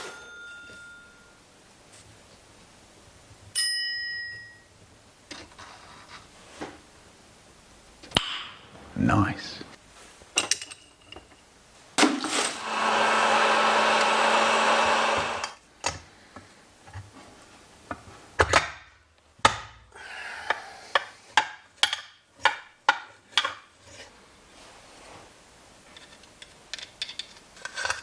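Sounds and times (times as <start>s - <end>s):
small power tool running: 12.6s - 15.6s
hand tools knocking and clicking: 20.5s - 23.6s.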